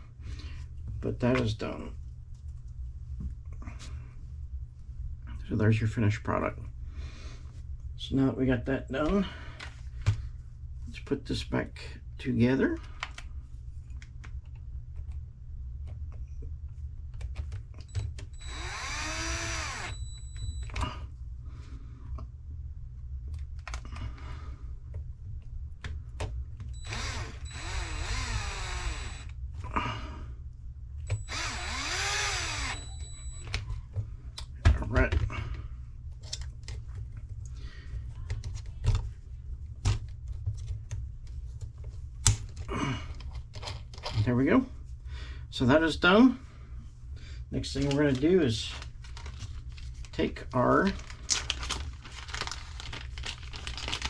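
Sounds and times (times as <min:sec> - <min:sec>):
steady low hum: 0:00.0 - 0:54.0
electric screwdriver whining: 0:17.8 - 0:20.8, 0:26.8 - 0:29.4, 0:31.1 - 0:33.5
small screws clicking: 0:18.4 - 0:20.0, 0:26.8 - 0:29.3, 0:31.1 - 0:33.1.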